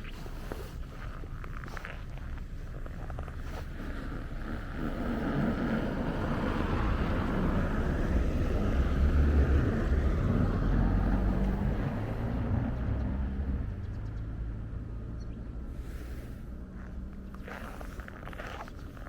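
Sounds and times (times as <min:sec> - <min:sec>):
motor vehicle driving past: 0:04.4 - 0:18.6.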